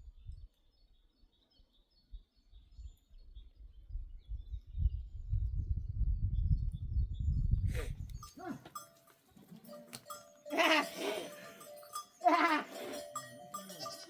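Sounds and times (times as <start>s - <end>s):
livestock bell ringing: 8.2s - 14.0s
sheep bleating: 10.5s - 14.0s.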